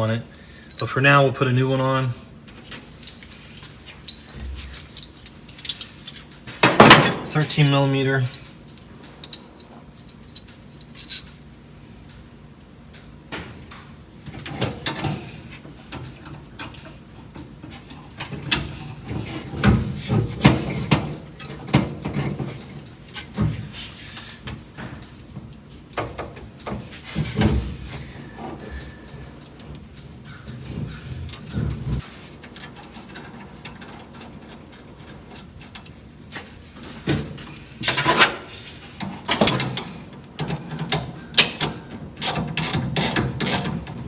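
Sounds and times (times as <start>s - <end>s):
hand tools clinking on metal: 0.5s - 1.4s, 2.9s - 11.4s.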